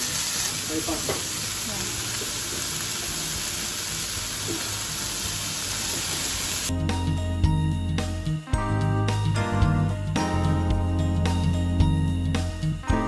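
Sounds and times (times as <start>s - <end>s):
food sizzling in frying pan: 0.0s - 6.7s
background music: 6.6s - 13.0s.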